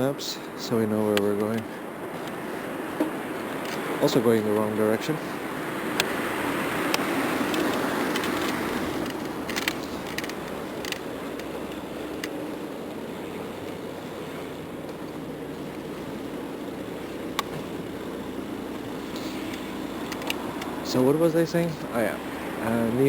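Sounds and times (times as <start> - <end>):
bicycle tyre noise: 0.9 - 23.0
sharp clicks: 6.9 - 12.4, 19.1 - 20.8.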